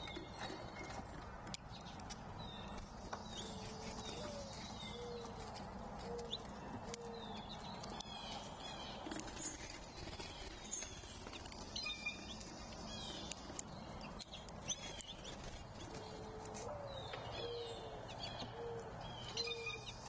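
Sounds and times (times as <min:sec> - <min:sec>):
songbirds chirping and trilling: 0:00.0 - 0:20.0
dove cooing: 0:03.4 - 0:07.6, 0:15.9 - 0:19.8.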